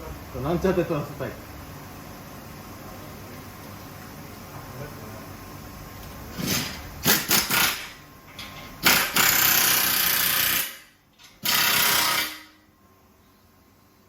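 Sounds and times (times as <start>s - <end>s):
shop power tool running: 6.3s - 8.0s, 8.8s - 12.6s.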